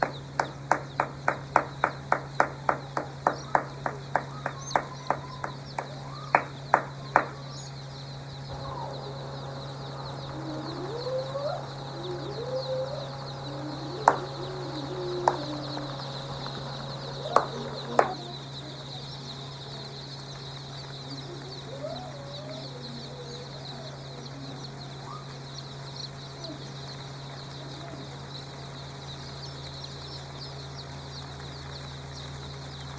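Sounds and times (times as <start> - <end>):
sharp taps: 0.0 - 7.6, 14.0 - 18.3
chickens clucking: 0.0 - 31.0
low hum: 0.0 - 32.9.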